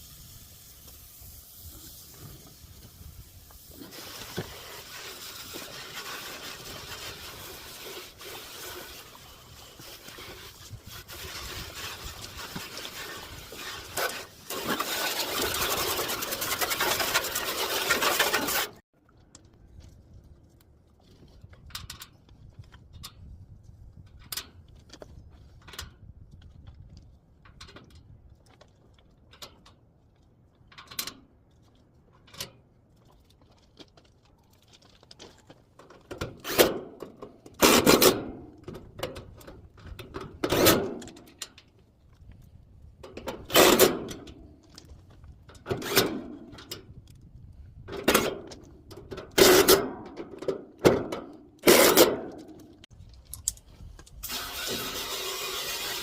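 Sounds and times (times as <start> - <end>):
hissing water spray: 54.2 - 56.0.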